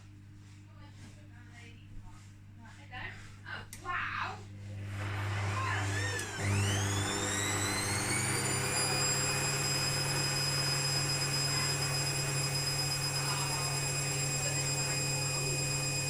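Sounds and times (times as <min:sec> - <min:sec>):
washing machine motor whine: 0:03.5 - 0:16.0.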